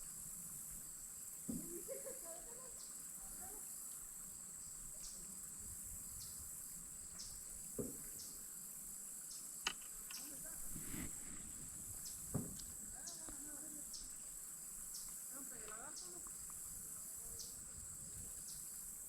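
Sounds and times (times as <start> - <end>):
crickets chirping: 0.0 - 19.0
knock: 1.5 - 1.7, 12.3 - 12.6.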